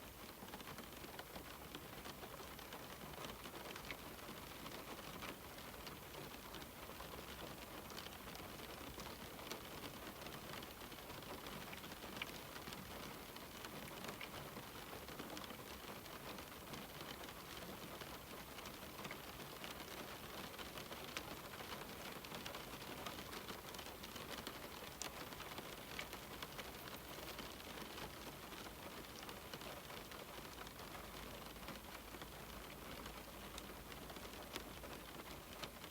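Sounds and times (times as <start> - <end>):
rain on a window: 0.0 - 35.9.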